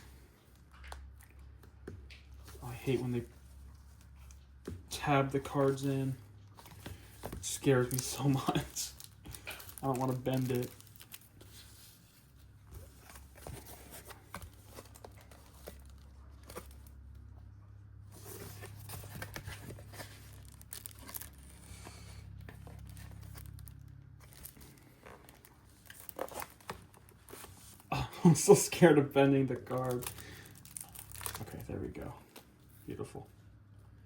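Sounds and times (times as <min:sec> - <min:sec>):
low steady hum: 0:00.0 - 0:34.0
packaging crinkling and tearing: 0:06.6 - 0:17.0, 0:18.2 - 0:32.2.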